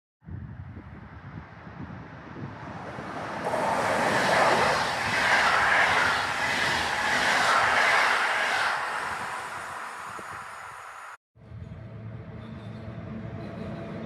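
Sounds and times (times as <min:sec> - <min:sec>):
electric train passing: 0:02.6 - 0:11.2.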